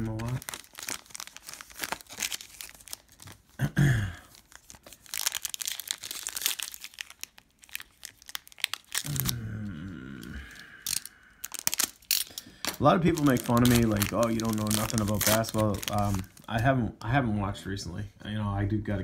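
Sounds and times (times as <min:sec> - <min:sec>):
foil wrapper tearing and crinkling: 0:00.0 - 0:03.6, 0:04.2 - 0:09.6, 0:10.2 - 0:16.5
low voice mumbling: 0:09.0 - 0:10.9.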